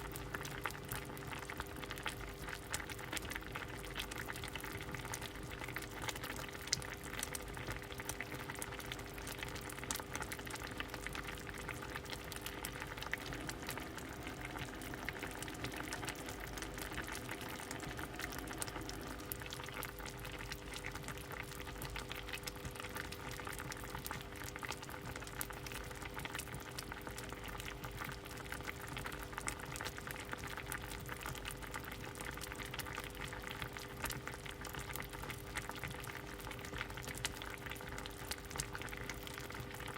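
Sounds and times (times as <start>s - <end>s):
faint steady hum: 0.0s - 39.9s
soup boiling and bubbling: 0.0s - 39.9s.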